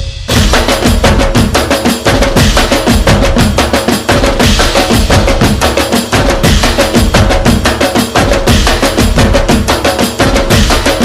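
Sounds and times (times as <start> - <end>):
dhol and tasha drumming: 0.0 - 11.0.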